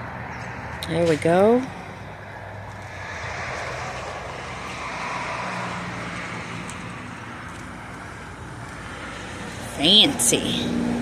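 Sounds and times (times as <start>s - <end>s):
rushing noise: 1.7s - 7.2s.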